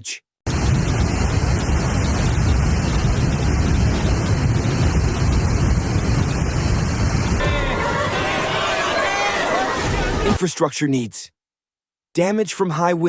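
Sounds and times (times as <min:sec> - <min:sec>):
storm wind buffeting microphone: 0:00.5 - 0:10.4.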